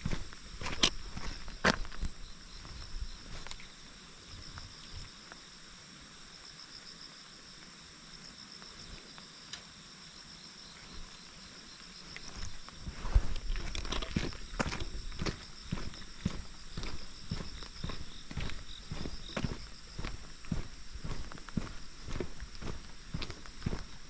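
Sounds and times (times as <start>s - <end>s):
footsteps on road: 0.0s - 3.7s, 12.1s - 24.0s
insects chirring: 0.0s - 24.0s.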